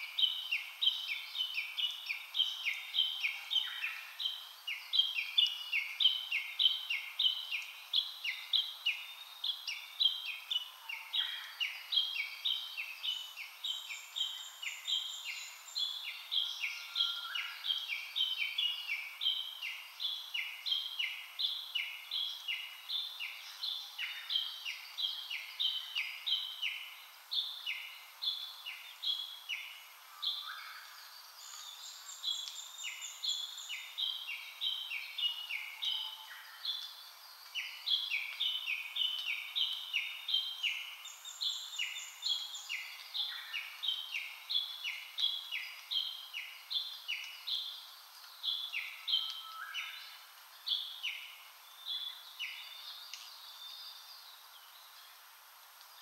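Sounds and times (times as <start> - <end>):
fainter lower bird calls: 0.0 - 56.0.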